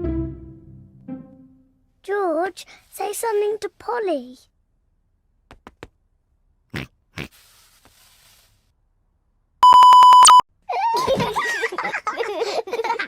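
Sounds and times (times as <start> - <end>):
censor bleep tone: 9.6 - 10.4.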